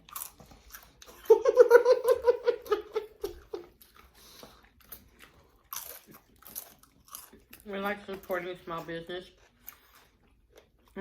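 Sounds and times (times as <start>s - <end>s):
person giggling: 1.2s - 3.8s.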